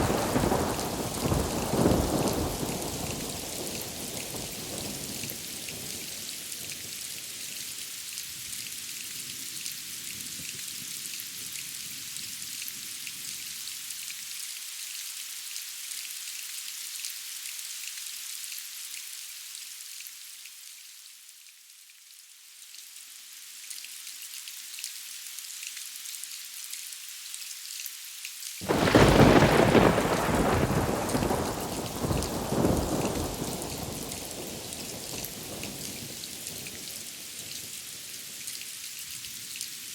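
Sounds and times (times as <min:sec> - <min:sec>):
loud thunderclap: 0:00.0 - 0:03.5, 0:28.6 - 0:35.5
distant thunder rumbling: 0:00.0 - 0:05.2, 0:28.6 - 0:36.2
steady rain hissing: 0:00.0 - 0:39.9.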